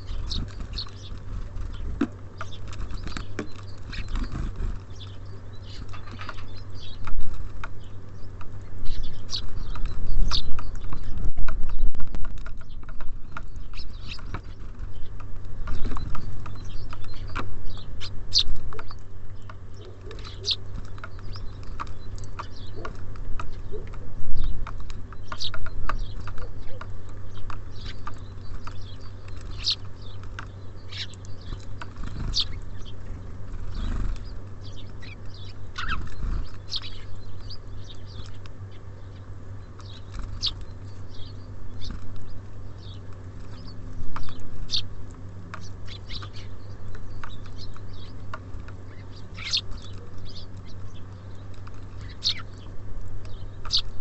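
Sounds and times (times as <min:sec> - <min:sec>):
songbirds chirping: 0:00.0 - 0:54.0
steady low hum: 0:00.0 - 0:54.0.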